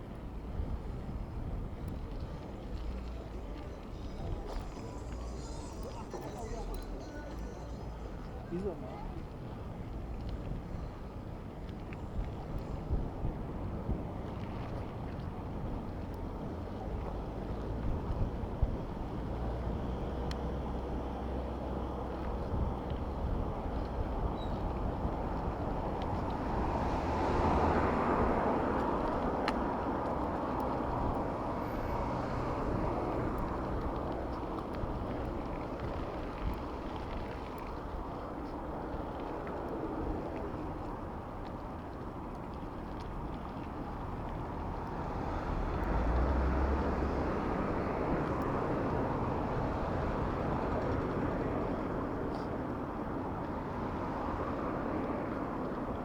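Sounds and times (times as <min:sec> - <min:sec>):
vehicle and road noise: 0:00.0 - 0:56.0
heavy engine rumble: 0:02.5 - 0:09.9.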